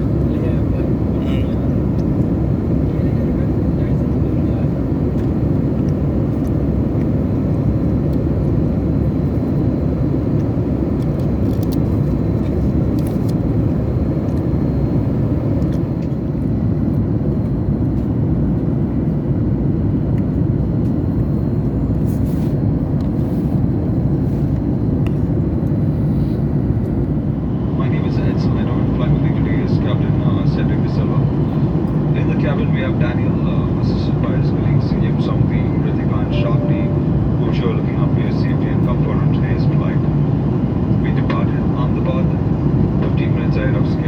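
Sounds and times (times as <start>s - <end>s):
aircraft cabin deep rumble: 0.0s - 44.0s
faint high tone: 36.2s - 37.5s.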